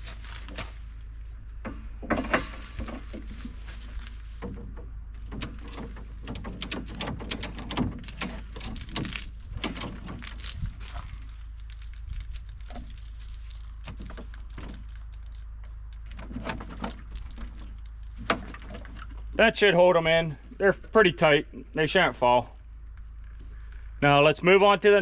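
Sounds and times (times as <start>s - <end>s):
ratchet strap clicking and rattling: 5.2s - 10.7s.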